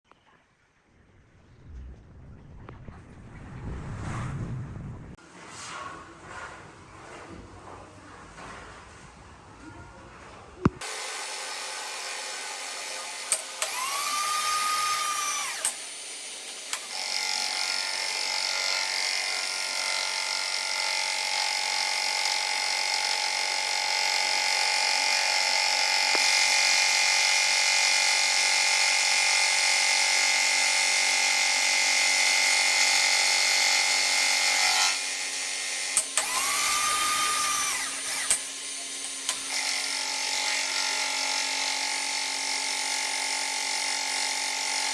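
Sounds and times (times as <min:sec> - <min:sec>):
power tool high whine: 0:10.8 - 0:44.9.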